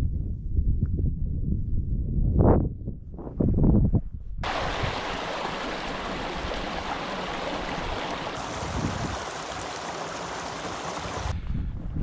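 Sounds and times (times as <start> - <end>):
running water: 4.4 - 11.4.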